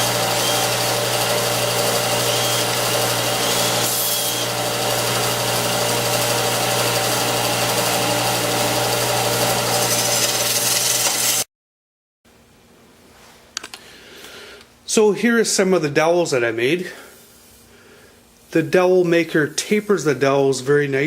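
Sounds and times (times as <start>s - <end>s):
belt sander humming: 0.0s - 11.4s
wood grinding against sanding belt: 0.0s - 11.4s.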